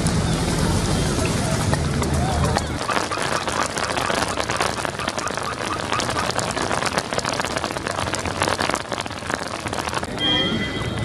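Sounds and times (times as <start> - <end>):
rain falling on wet road: 0.0 - 11.0.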